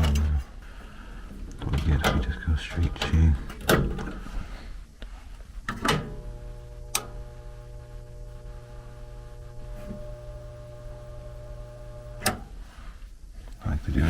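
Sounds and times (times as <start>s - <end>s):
furnace electrical hum: 0.0s - 14.0s.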